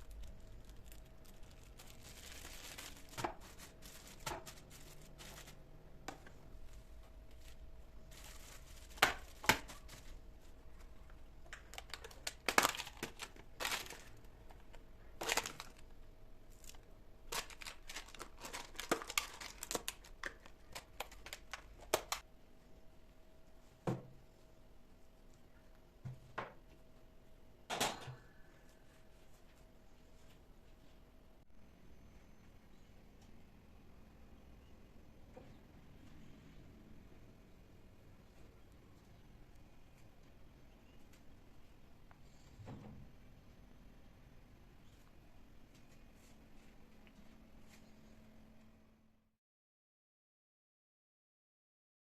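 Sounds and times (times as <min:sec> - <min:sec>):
packaging crinkling: 0:00.0 - 0:05.6, 0:07.3 - 0:10.2, 0:11.5 - 0:22.2
faint steady hum: 0:00.0 - 0:49.3.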